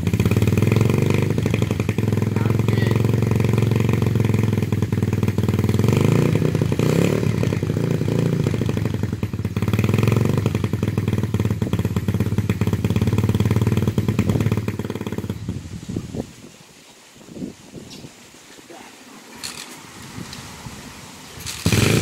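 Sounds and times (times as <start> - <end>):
dirt bike engine idling: 0.0 - 15.8, 21.5 - 22.0.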